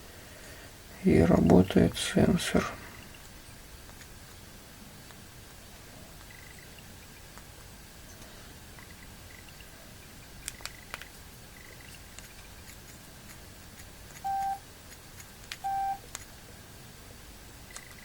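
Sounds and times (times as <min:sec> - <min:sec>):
fingers tapping touchscreen: 0:14.1 - 0:14.6
mobile phone beeps: 0:14.2 - 0:14.6, 0:15.6 - 0:16.0.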